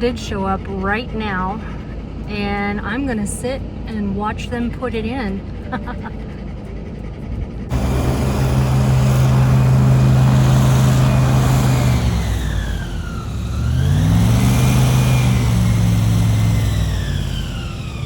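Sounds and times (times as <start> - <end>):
engine whine: 0.0 - 18.0
large engine revving: 7.7 - 18.0.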